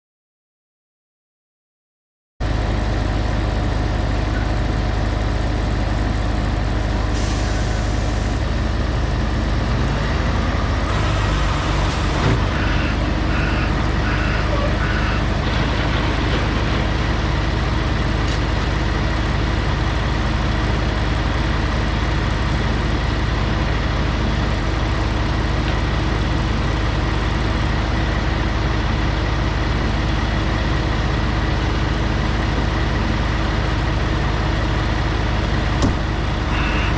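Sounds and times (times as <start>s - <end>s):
diesel truck engine running: 2.4s - 36.9s
short air hisses: 7.2s - 8.4s.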